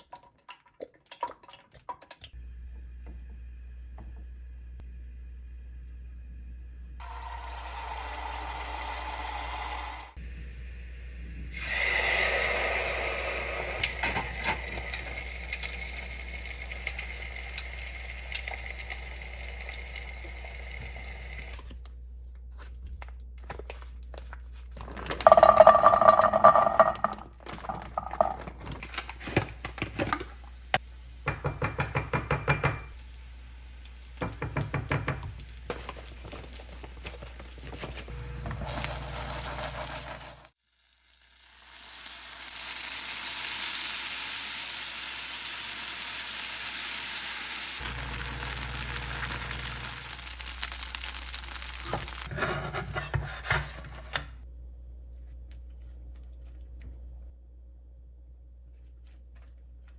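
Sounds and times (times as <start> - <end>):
kitchenware clattering: 24.8 - 30.3, 31.2 - 33.0, 51.9 - 54.4.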